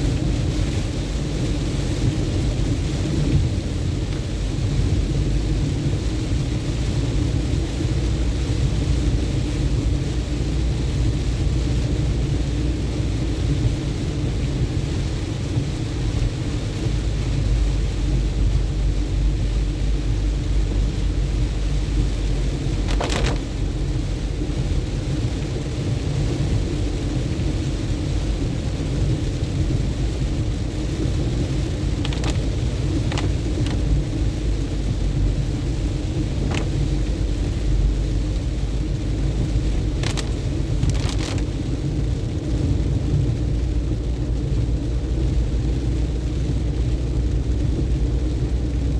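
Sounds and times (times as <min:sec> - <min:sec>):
car engine and tyre rumble: 0:00.0 - 0:48.9
rain hiss: 0:00.0 - 0:48.9.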